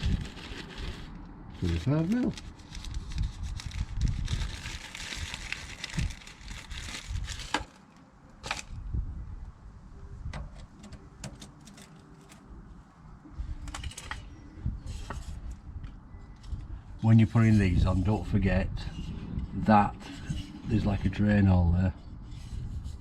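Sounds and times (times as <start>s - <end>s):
small parts handled by hand: 13.6s - 15.6s.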